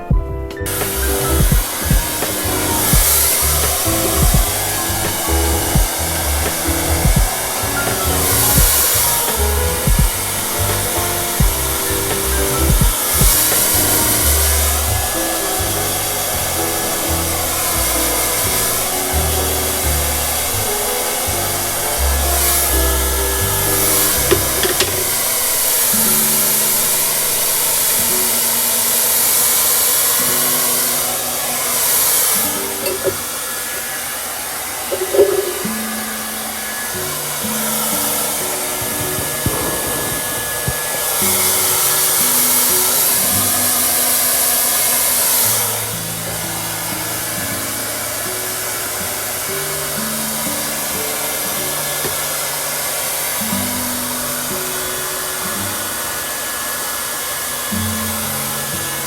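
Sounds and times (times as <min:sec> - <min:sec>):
soft background music: 0:00.0 - 0:33.6
hair dryer blowing: 0:00.0 - 0:59.0.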